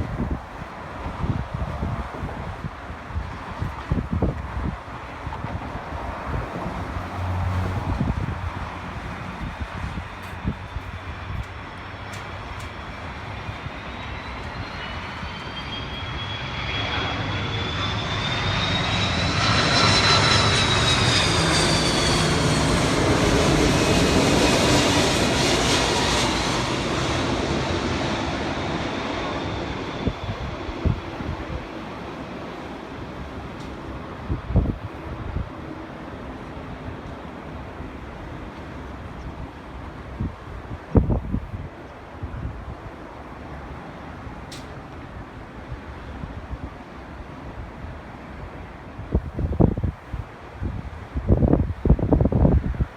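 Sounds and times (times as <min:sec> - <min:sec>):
airplane passing overhead: 0:00.0 - 0:52.9
high engine whine: 0:06.8 - 0:35.3.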